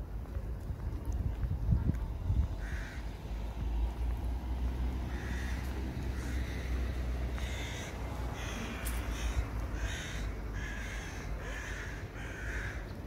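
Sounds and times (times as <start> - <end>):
low outdoor rumble: 0.0 - 13.0
bird cawing: 2.6 - 3.1, 5.0 - 13.0.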